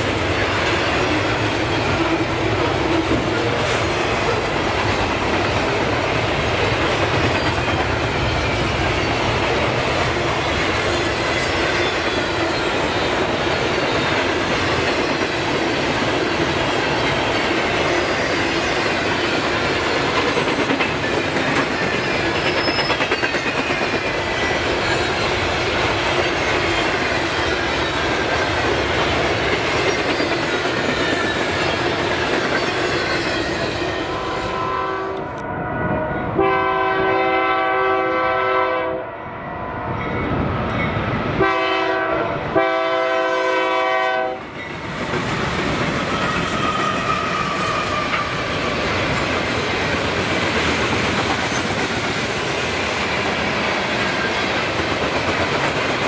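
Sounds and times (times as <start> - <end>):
train wheels clickety-clack: 0.0 - 34.6, 42.6 - 56.0
locomotive air horn blasts: 34.1 - 39.4, 41.4 - 44.4.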